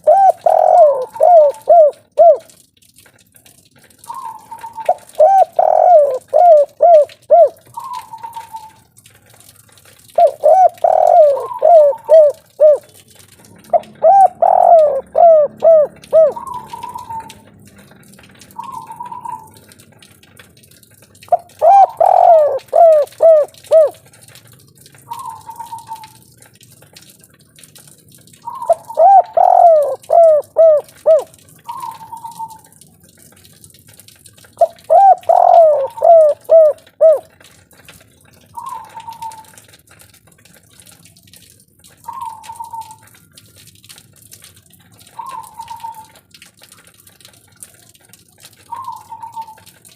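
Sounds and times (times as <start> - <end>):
dove cooing: 0.0 - 2.5, 4.1 - 8.8, 10.2 - 13.0, 13.6 - 17.5, 18.6 - 19.6, 21.3 - 24.0, 25.1 - 26.2, 28.4 - 32.7, 34.6 - 37.4, 38.6 - 39.6, 45.1 - 46.2, 48.7 - 49.7.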